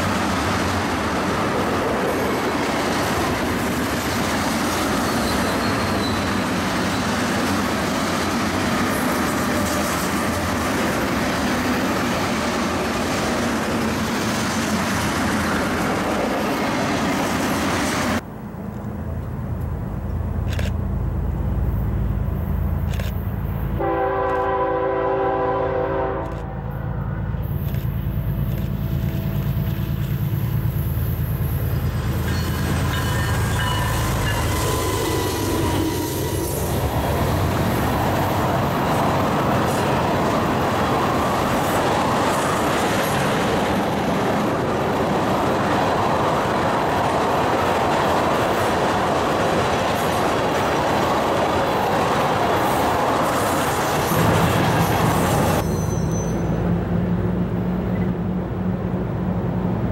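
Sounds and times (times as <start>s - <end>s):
train wheels clattering on rail: 0.0s - 18.2s, 27.4s - 56.6s
diesel locomotive engine rumble: 0.0s - 59.9s
train air horn blast: 23.8s - 26.7s.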